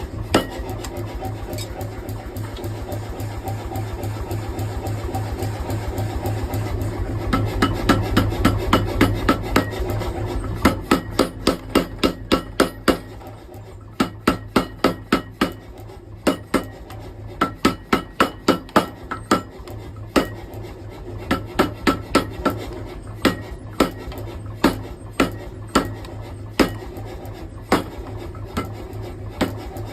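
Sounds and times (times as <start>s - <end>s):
hammer striking hot steel: 0.2s - 2.7s, 6.5s - 13.3s, 13.9s - 20.7s, 21.3s - 29.8s.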